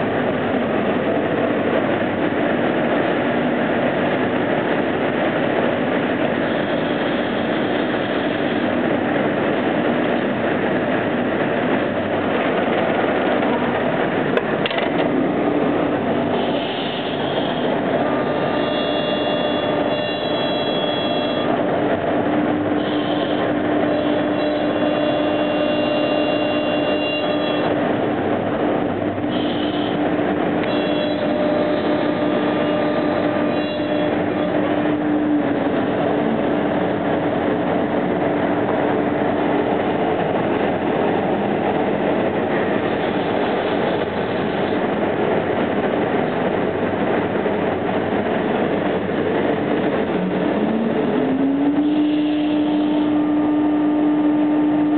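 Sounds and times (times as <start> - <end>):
router spindle cutting: 30.6 - 36.0.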